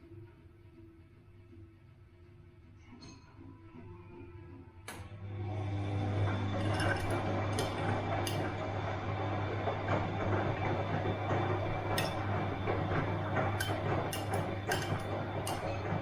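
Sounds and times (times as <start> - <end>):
washing machine running: 4.9 - 16.0
clinks and knocks in drum: 11.7 - 16.0.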